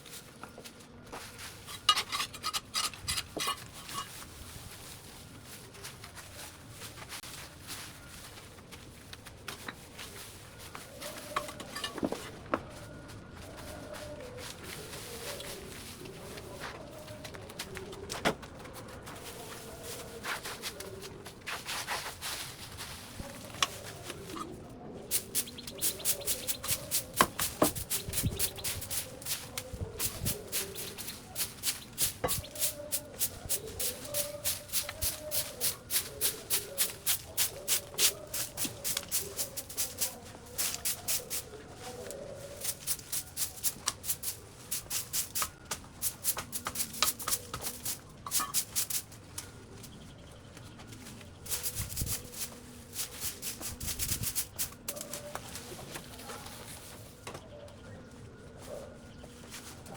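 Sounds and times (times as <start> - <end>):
brisk scraping strokes: 25.1 - 41.6.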